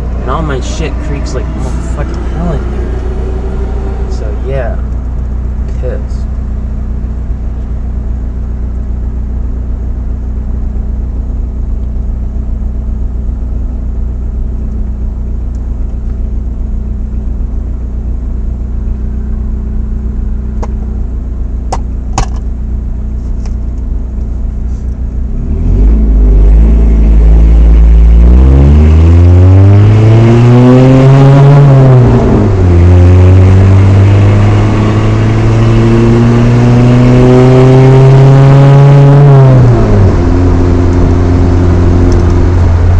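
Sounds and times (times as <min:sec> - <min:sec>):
truck engine idling and revving: 0:00.0 - 0:42.9.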